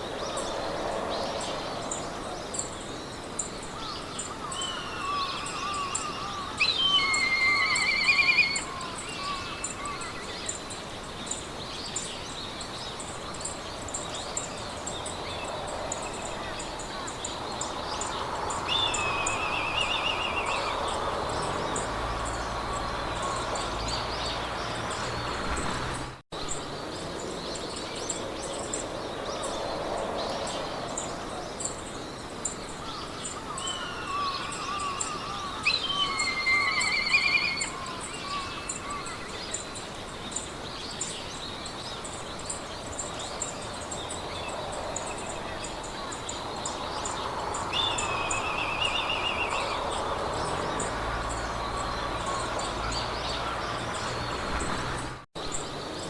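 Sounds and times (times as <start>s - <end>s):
birds singing warbling trills: 0.0s - 56.0s
wind blowing through grass: 0.0s - 56.0s.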